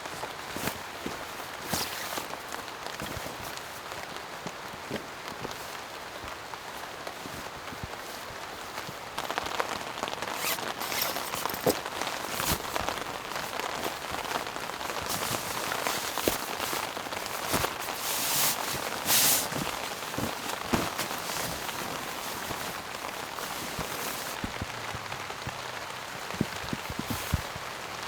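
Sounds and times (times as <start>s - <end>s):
rain falling: 0.0s - 28.0s.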